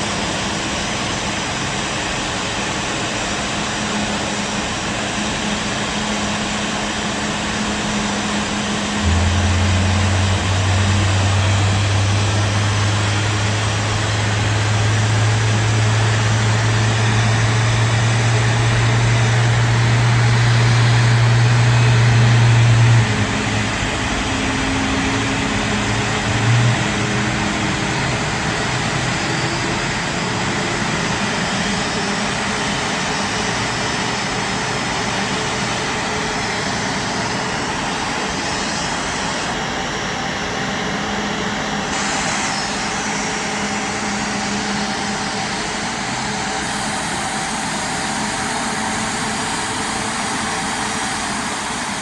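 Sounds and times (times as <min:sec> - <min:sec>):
jet engines rushing: 0:00.0 - 0:52.0
faint steady tones: 0:08.8 - 0:15.7.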